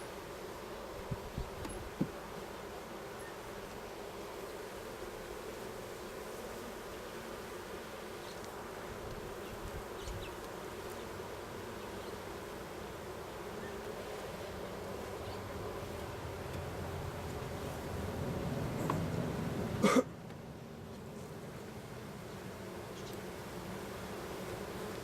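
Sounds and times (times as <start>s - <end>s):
bees buzzing: 0.0s - 25.0s
light knocks of hive frames: 1.1s - 2.4s, 16.3s - 17.5s, 18.8s - 19.2s.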